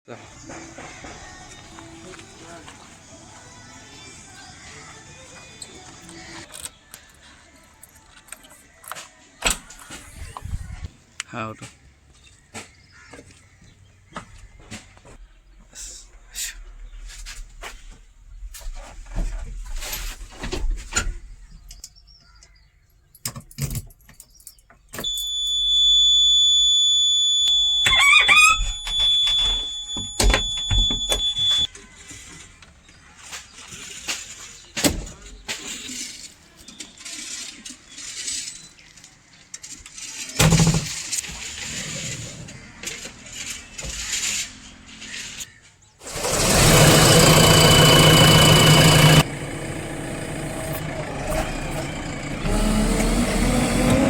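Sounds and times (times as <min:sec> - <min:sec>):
high-pitched machine whistle: 0:25.0 - 0:31.7, 0:46.1 - 0:49.3.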